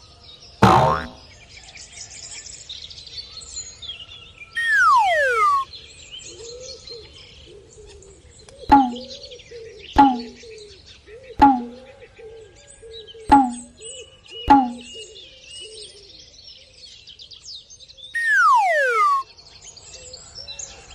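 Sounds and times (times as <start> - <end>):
falling whistle-like tone: 4.6 - 5.6, 18.2 - 19.2.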